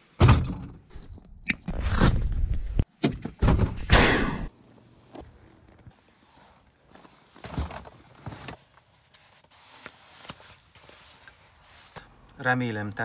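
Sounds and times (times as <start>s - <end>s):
loud thump: 3.1s - 4.5s.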